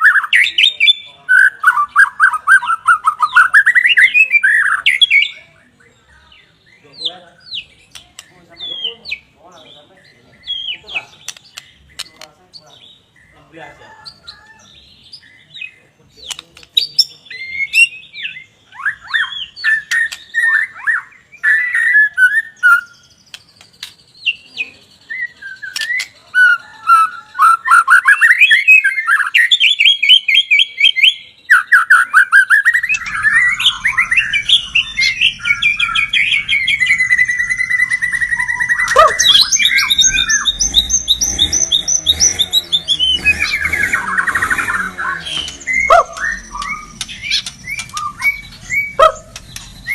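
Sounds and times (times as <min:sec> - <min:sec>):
songbird singing trills: 0:00.0 - 0:49.9
low background rumble: 0:32.9 - 0:38.9.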